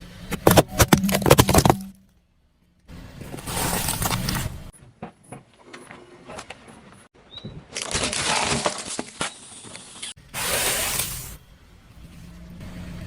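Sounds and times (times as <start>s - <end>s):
objects crunching under tyres: 0.0s - 2.0s, 3.2s - 6.8s, 7.6s - 11.5s.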